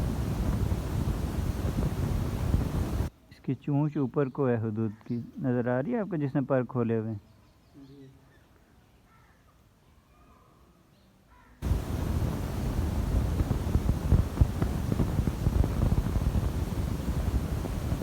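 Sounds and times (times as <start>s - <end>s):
wind buffeting microphone: 0.0s - 3.1s, 11.6s - 18.0s
faint bird chirps: 7.2s - 11.6s.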